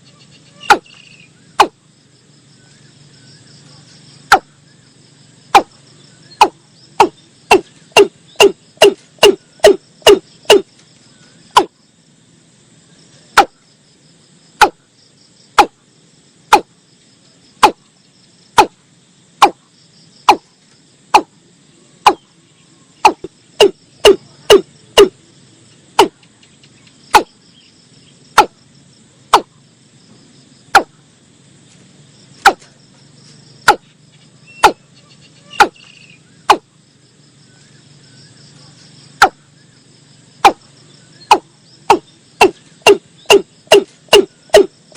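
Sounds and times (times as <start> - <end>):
high chorus of insects: 0.0 - 44.9
bird calling sharp knocking notes: 0.6 - 1.0, 1.6 - 1.8, 4.3 - 4.5, 5.5 - 5.7, 6.4 - 10.7, 11.5 - 11.7, 14.6 - 14.8, 15.6 - 15.8, 22.0 - 22.2, 23.0 - 25.2, 26.0 - 26.2, 27.1 - 27.3, 29.3 - 29.5, 30.7 - 30.9, 32.4 - 32.6, 33.6 - 33.8, 34.6 - 34.8, 35.6 - 35.9, 39.2 - 39.4, 41.3 - 44.7.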